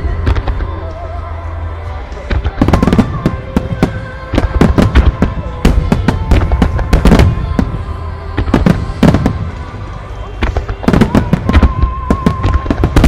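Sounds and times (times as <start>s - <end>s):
firework booms and cracks: 2.3s - 7.8s, 8.4s - 9.7s, 10.4s - 13.0s.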